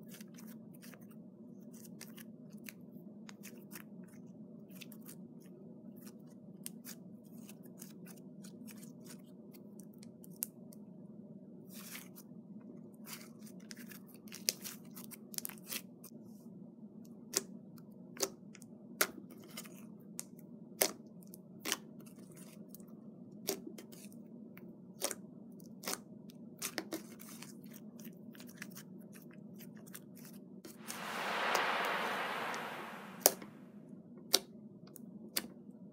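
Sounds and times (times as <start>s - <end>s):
low steady hum: 30.8s - 33.5s.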